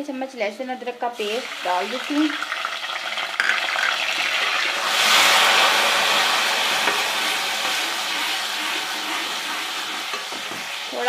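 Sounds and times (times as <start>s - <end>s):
onions sizzling in fat: 1.1s - 11.0s
loud sizzle as paste hits fat: 2.8s - 11.0s.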